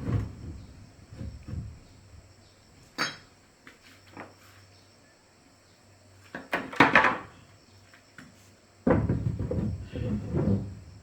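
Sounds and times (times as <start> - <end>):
hard objects knocking and clattering: 6.4 - 7.3, 8.8 - 10.8.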